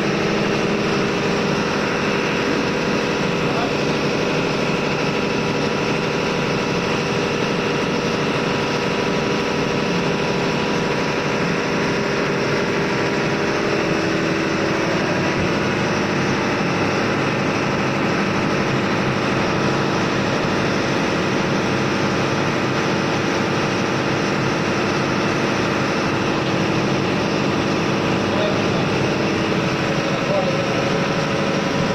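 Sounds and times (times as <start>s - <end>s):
diesel machinery drone: 0.0s - 31.9s.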